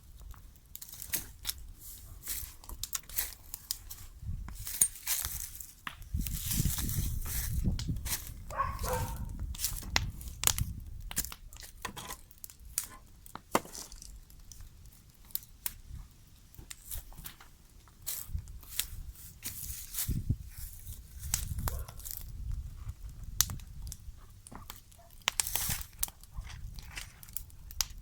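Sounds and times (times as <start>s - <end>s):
bonfire crackling and popping: 0.0s - 28.0s
low fire rumble: 0.0s - 28.0s.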